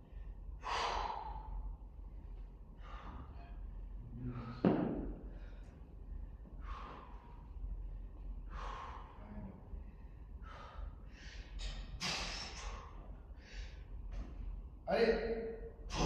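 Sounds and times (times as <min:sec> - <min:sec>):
person breathing hard: 0:00.0 - 0:01.8, 0:02.8 - 0:13.9.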